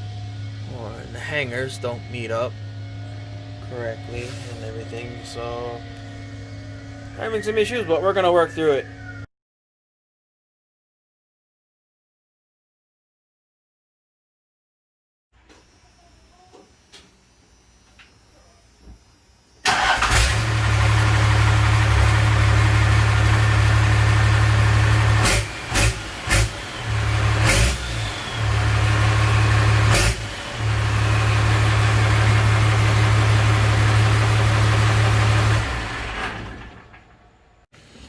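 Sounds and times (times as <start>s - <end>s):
diesel engine running: 0.0s - 9.3s, 18.8s - 37.6s.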